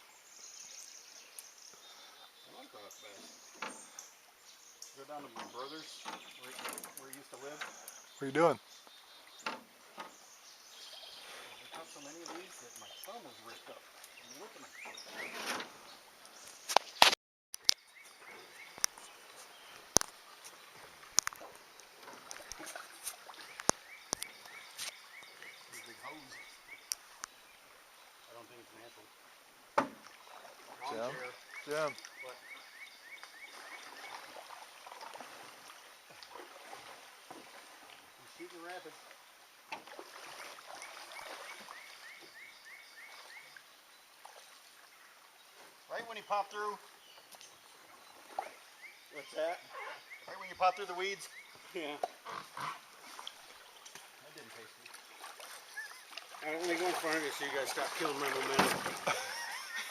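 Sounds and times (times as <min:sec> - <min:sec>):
faint outdoor background: 0:00.0 - 0:59.9
creek water rushing: 0:18.0 - 0:49.6, 0:50.4 - 0:59.9.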